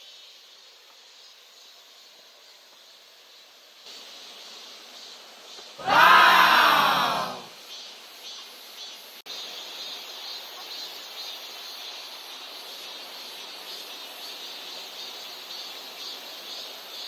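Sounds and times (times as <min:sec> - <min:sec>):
loud shout-like sound: 0:05.8 - 0:07.5.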